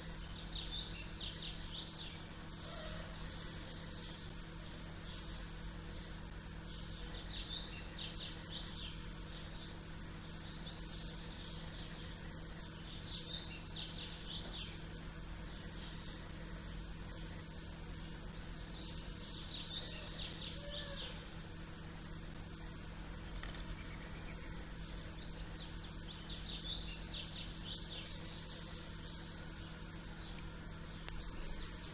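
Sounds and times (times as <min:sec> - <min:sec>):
small bird singing: 0:00.0 - 0:21.4, 0:23.6 - 0:31.9
low background hum: 0:00.0 - 0:31.9.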